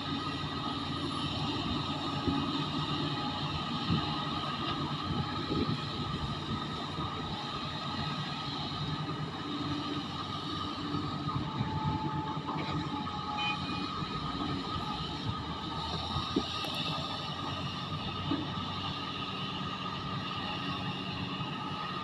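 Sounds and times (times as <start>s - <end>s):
heavy machinery diesel engines: 0.0s - 22.0s.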